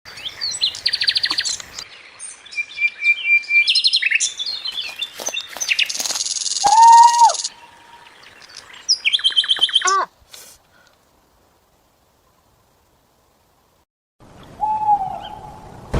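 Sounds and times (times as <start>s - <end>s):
songbirds chirping and singing: 0.1s - 10.1s.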